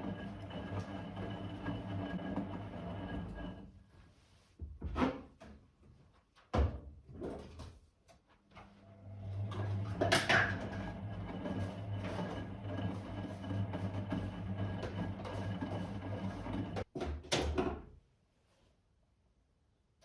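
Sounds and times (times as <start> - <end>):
washing machine motor hum: 0.0 - 3.6, 8.8 - 16.9.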